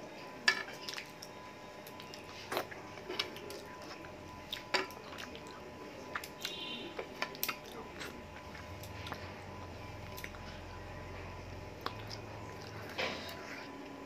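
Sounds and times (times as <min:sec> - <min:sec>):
wet chewing and lip smacks: 0:10.0 - 0:10.5, 0:11.8 - 0:13.7.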